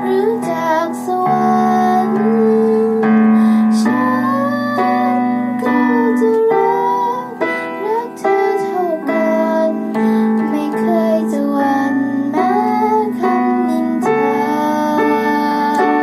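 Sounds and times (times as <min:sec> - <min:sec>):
person singing a melody: 0:00.0 - 0:16.0
sustained keyboard chords: 0:00.0 - 0:16.0.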